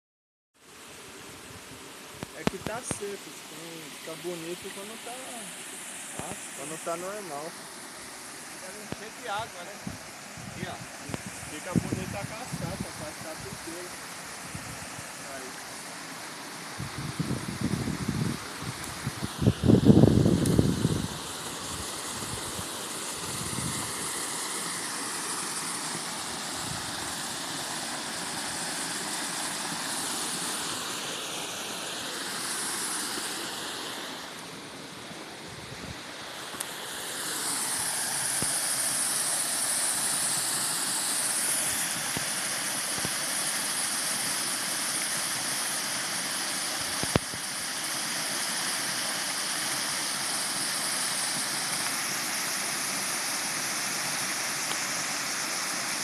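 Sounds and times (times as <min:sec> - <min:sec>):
waterfall rushing: 0:21.0 - 0:56.0.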